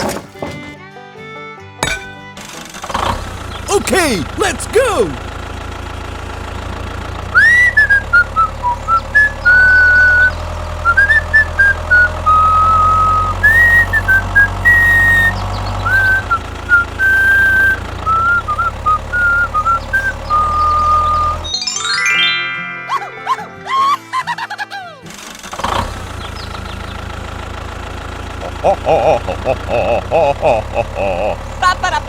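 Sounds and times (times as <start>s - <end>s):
low engine hum: 2.9s - 21.5s, 25.6s - 32.0s
person whistling a tune: 7.4s - 21.4s.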